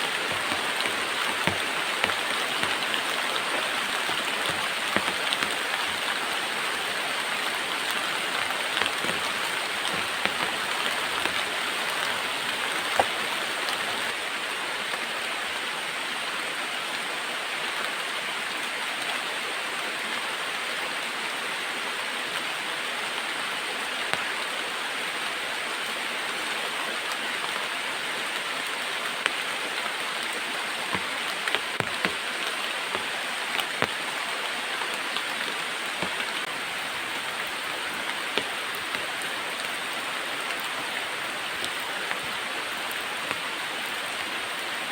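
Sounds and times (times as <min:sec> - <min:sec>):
heavy rain hissing: 0:00.0 - 0:15.4, 0:22.1 - 0:44.9
sharp taps of heavy drops: 0:00.1 - 0:06.1, 0:07.9 - 0:14.0, 0:30.9 - 0:32.2.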